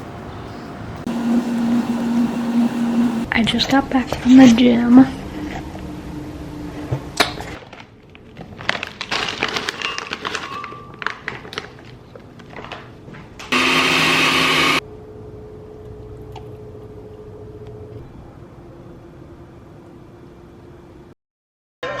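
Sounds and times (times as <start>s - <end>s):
faint steady hum: 0.9s - 3.3s
small motor running: 1.1s - 3.3s.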